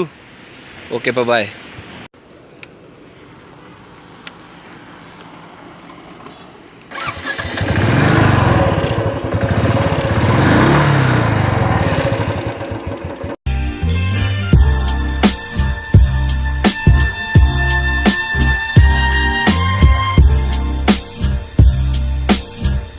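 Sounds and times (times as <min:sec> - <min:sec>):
motorcycle engine revving: 0:05.3 - 0:13.4.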